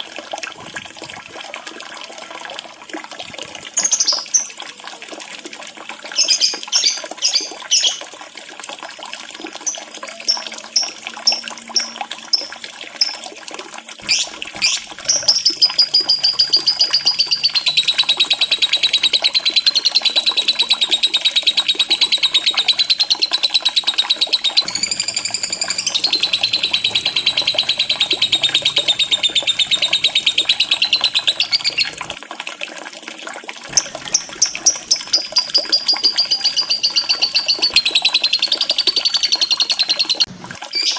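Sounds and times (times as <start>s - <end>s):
bird chirping and trilling: 6.2s - 8.0s, 14.0s - 32.2s, 33.7s - 40.9s.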